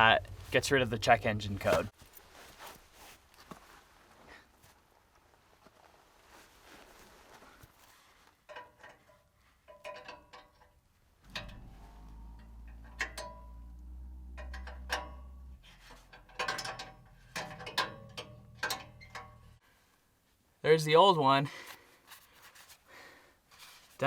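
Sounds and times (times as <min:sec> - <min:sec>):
low steady hum: 0:00.0 - 0:02.4, 0:11.0 - 0:19.9
hand tools clinking on metal: 0:16.2 - 0:19.5.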